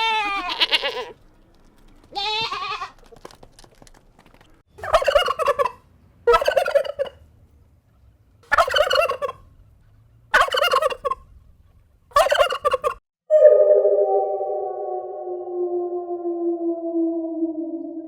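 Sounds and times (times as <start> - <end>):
farm bird warbling calls: 4.8 - 7.2, 8.5 - 9.4, 10.3 - 11.2, 12.2 - 13.0
sustained musical tone: 13.3 - 18.0.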